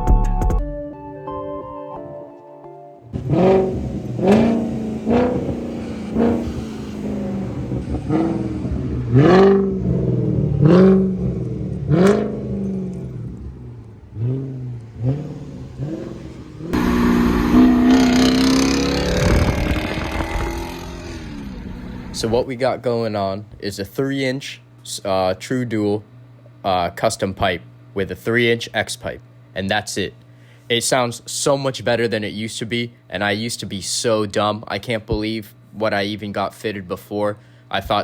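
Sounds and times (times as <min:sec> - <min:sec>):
car engine revving: 0:03.1 - 0:22.5.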